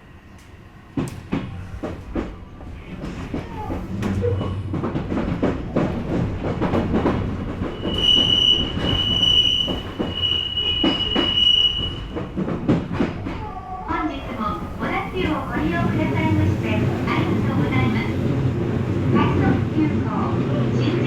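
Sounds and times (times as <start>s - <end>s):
electric train rumbling: 0.0s - 21.0s
high-pitched wheel squeal: 7.7s - 12.1s.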